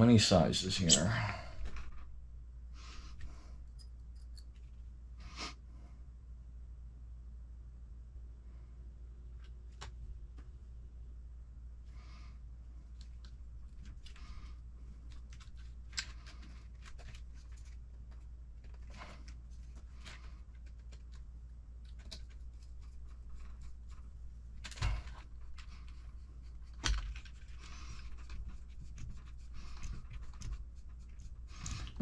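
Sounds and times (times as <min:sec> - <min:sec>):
faint low hum: 0:00.0 - 0:32.0
small parts clicking and rattling: 0:15.0 - 0:30.6.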